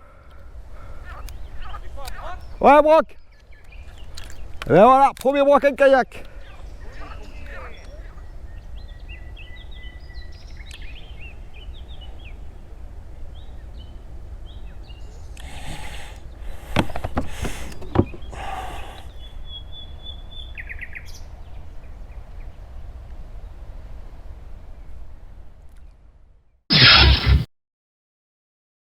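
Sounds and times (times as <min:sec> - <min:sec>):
small birds chirping: 0:00.1 - 0:04.9, 0:06.2 - 0:12.6, 0:13.3 - 0:22.5.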